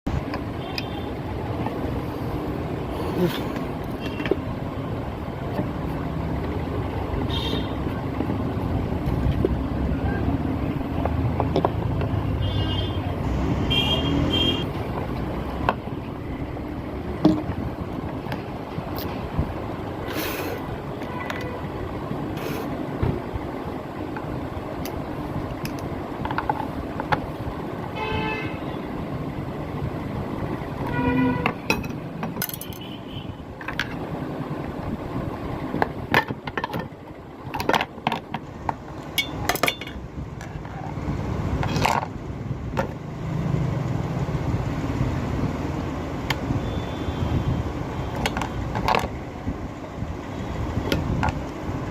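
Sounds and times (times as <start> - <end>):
street traffic: 0.0 - 51.9
hand tools clicking and scraping: 31.4 - 32.8, 35.7 - 42.2.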